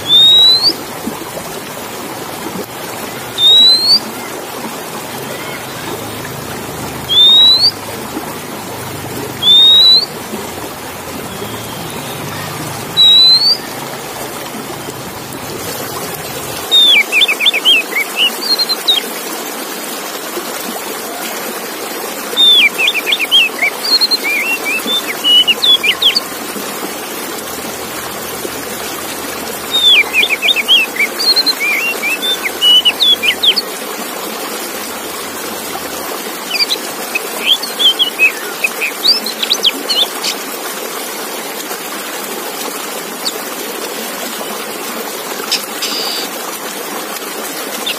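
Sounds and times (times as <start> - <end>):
bird singing chirps and whistles: 0.0 - 0.8, 3.3 - 4.1, 7.1 - 7.8, 9.4 - 10.2, 11.3 - 13.7, 16.6 - 19.0, 22.4 - 26.3, 29.6 - 33.6, 36.5 - 40.1, 45.8 - 46.3.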